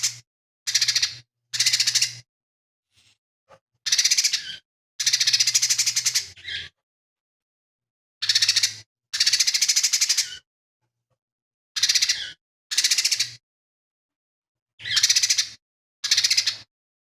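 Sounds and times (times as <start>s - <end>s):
bird singing rattling phrases: 0.0s - 2.3s, 3.8s - 6.8s, 8.2s - 10.5s, 11.8s - 13.4s, 14.8s - 16.7s.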